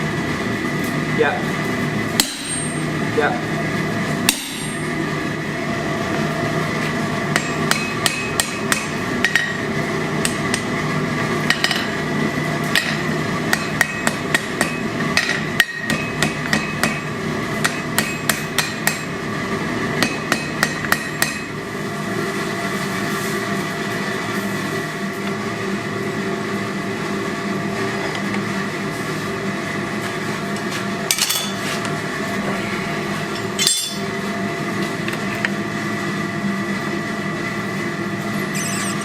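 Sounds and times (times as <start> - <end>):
hammer striking steel on anvil: 2.2 - 2.9, 4.3 - 5.0, 7.3 - 9.6, 12.8 - 19.1, 20.0 - 21.5, 33.6 - 34.1.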